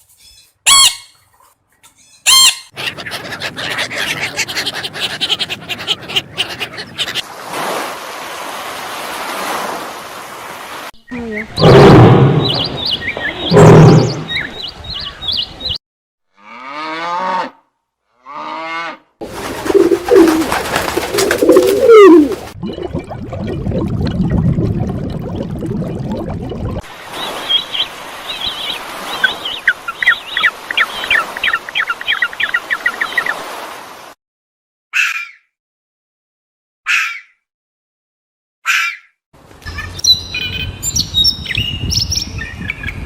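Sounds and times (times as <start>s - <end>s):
loud low animal calls: 19.4s - 22.5s
animal calls with sliding pitch: 19.4s - 22.6s.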